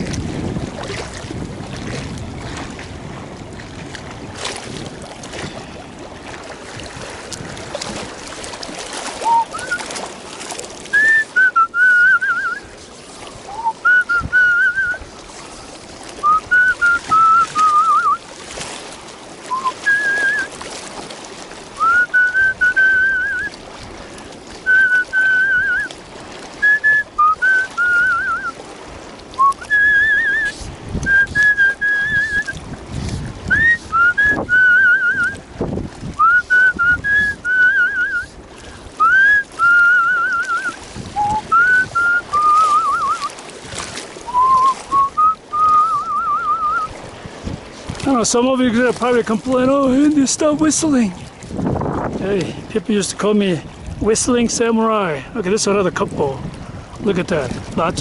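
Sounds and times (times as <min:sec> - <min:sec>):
man whistling a tune: 0:09.2 - 0:09.9, 0:10.9 - 0:12.7, 0:13.5 - 0:15.0, 0:16.2 - 0:18.2, 0:19.5 - 0:20.5, 0:21.8 - 0:23.6, 0:24.6 - 0:25.9, 0:26.6 - 0:28.6, 0:29.4 - 0:32.6, 0:33.5 - 0:35.4, 0:36.2 - 0:38.4, 0:39.0 - 0:43.3, 0:44.3 - 0:46.9.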